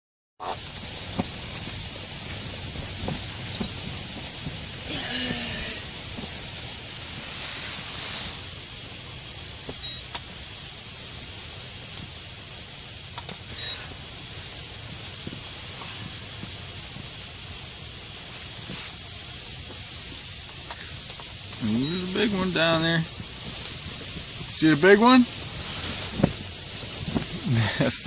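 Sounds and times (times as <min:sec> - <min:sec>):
steady high hiss: 0:00.4 - 0:28.0
electronic beeps: 0:09.8 - 0:10.1, 0:13.5 - 0:13.8, 0:21.6 - 0:22.5.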